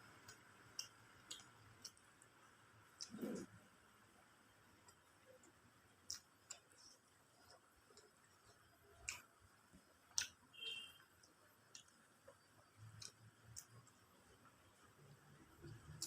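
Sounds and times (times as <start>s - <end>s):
faint chewing: 0.1s - 3.6s, 4.7s - 10.4s, 11.2s - 16.0s
mouth clicks: 3.0s - 3.5s.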